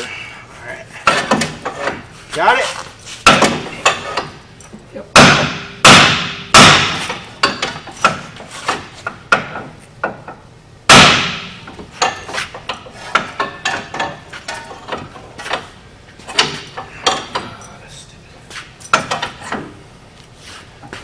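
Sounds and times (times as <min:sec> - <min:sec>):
heavy ringing hammer strikes: 0:05.2 - 0:08.2, 0:10.9 - 0:12.2.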